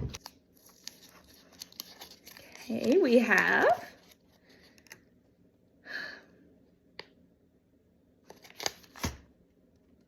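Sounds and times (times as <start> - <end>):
paper rustling: 0.0 - 5.0.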